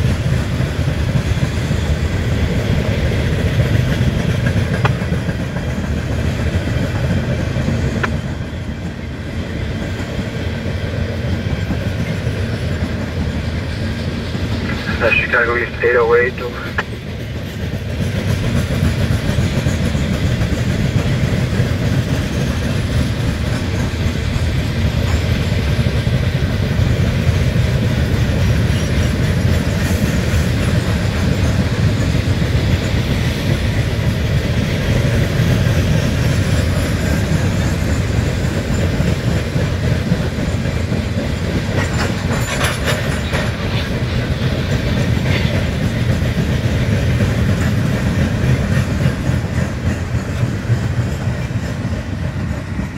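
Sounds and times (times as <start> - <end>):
wheels clacking over rail joints: 0.0 - 9.1, 16.8 - 52.9
train wheels rumbling on rails: 0.0 - 52.9
sharp clatter: 41.5 - 43.9.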